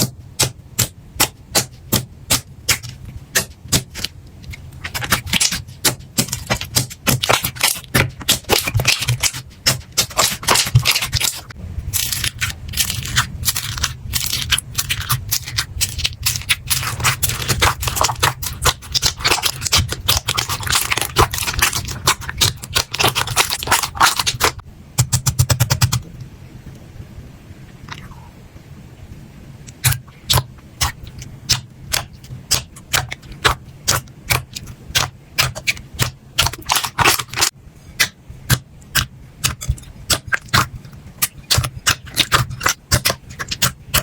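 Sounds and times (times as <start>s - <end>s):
slime crackling and popping: 4.8s - 25.4s, 29.8s - 44.0s.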